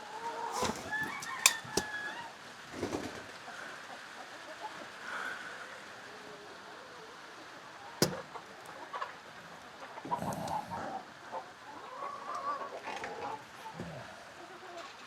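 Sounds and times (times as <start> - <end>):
chickens clucking: 0.0 - 5.0, 6.8 - 15.0
chickens scuffling: 0.2 - 3.3
sharp click: 8.0 - 8.2.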